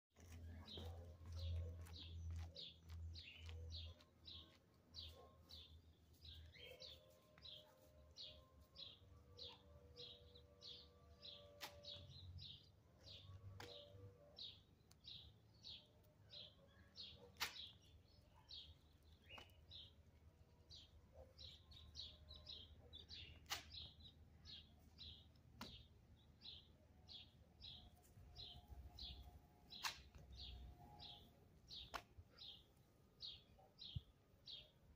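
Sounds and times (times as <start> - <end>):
small bird chirping: 0.2 - 20.0
sharp clicks: 29.7 - 30.3.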